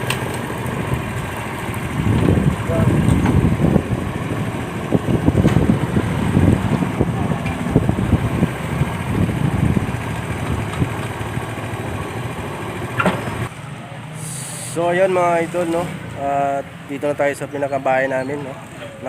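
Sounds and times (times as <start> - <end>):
wind rumbling on microphone: 0.0 - 12.4
vehicle engine running: 0.0 - 19.0.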